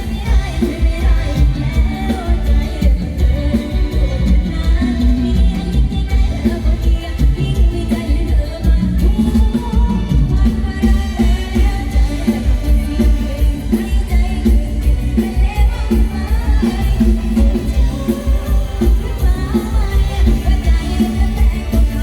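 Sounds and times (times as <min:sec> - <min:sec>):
bass beat: 0:00.0 - 0:22.0
live band music: 0:00.0 - 0:22.0
woman singing: 0:00.0 - 0:22.0.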